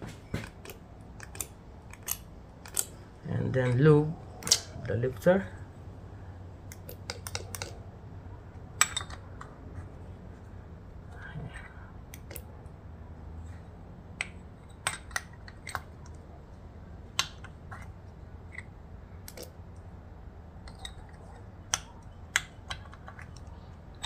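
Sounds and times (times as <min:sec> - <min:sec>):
small metal parts clicking: 0:00.4 - 0:04.8, 0:06.7 - 0:07.8, 0:08.8 - 0:09.5, 0:18.5 - 0:19.6.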